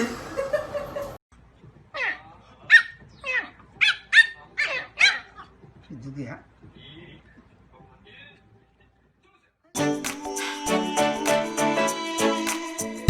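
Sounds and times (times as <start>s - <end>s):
dog yelping: 2.0s - 5.6s.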